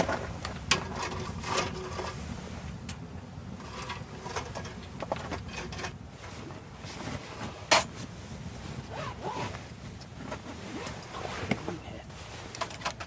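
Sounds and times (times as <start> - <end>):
camp gear clicks and knocks: 0.0 - 2.2, 3.6 - 6.0, 6.9 - 8.1, 8.8 - 11.8, 12.4 - 13.0
low steady rumble: 0.0 - 13.0.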